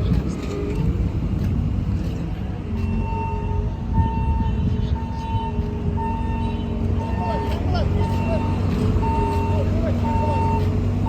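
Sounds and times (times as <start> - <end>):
street traffic: 0.0 - 11.0
reversing alarm beeping: 2.9 - 10.7.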